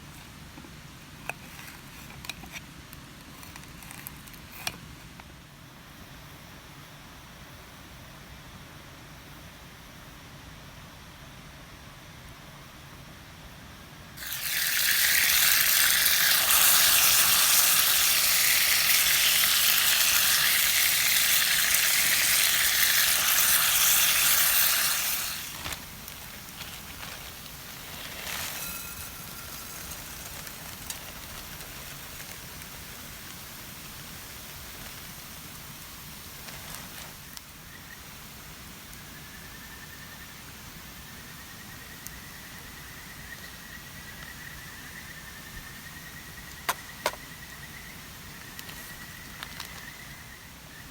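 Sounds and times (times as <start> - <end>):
food sizzling in a skillet: 14.2 - 37.4.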